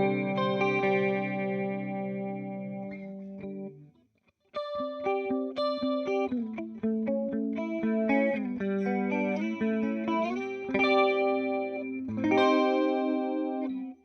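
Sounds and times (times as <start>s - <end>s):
clean electric guitar with chorus: 0.0s - 3.9s, 4.6s - 14.0s
guitar chords ringing: 0.0s - 3.9s, 4.6s - 14.0s.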